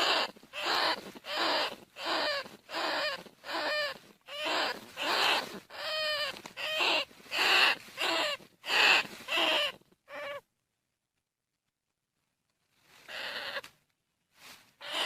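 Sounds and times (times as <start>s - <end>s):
rat squeals: 0.0s - 10.4s, 13.1s - 13.6s, 14.8s - 15.0s.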